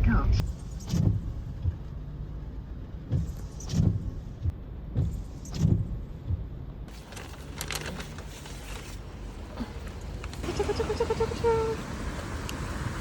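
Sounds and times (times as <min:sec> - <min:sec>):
dull low thumps: 0:00.0 - 0:06.9
road and engine drone: 0:00.0 - 0:13.0.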